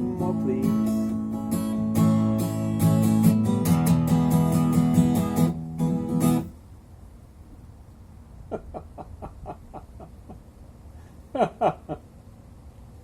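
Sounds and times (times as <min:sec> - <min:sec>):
acoustic guitar strumming: 0:00.0 - 0:06.6.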